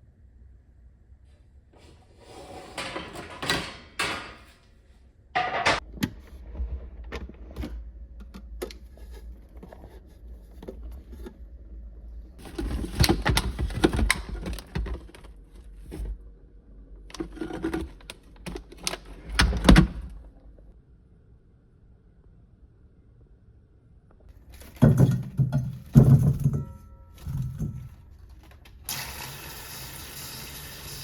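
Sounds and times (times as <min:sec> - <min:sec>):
rustling and clatter: 0:12.2 - 0:16.2, 0:24.3 - 0:28.8
objects clicking and knocking: 0:24.5 - 0:28.8.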